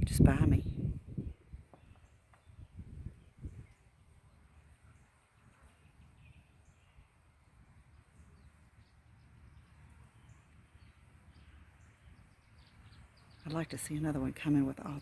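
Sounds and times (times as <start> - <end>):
faint bird chirps: 0.7 - 14.0.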